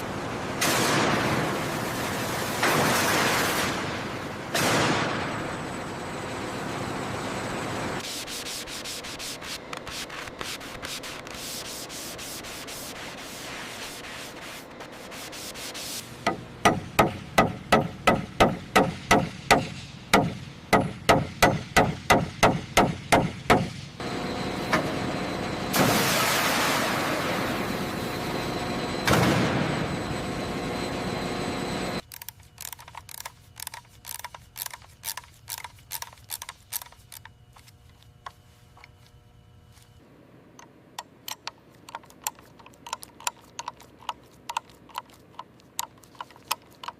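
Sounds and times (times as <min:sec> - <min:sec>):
rubbing strokes over a surface: 0:08.1 - 0:16.0.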